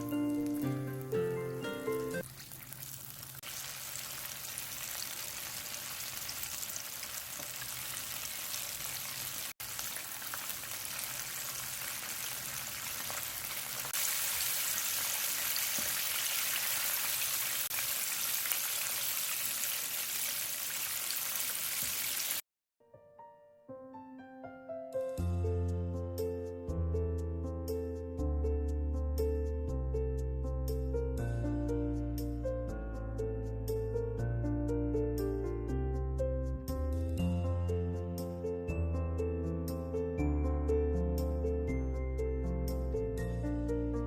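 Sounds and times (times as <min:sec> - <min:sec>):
chicken sizzling in hot oil: 0:00.0 - 0:22.4.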